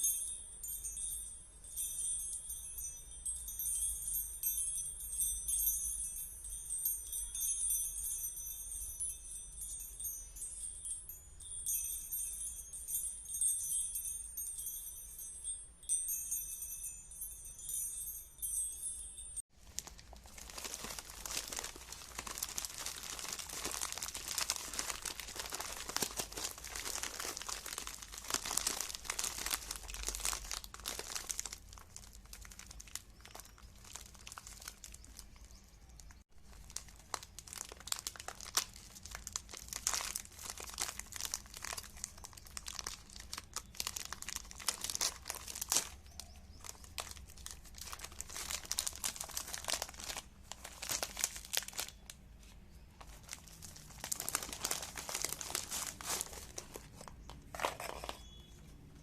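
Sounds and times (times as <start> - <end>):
dense crinkling and crackling: 19.5 - 59.0.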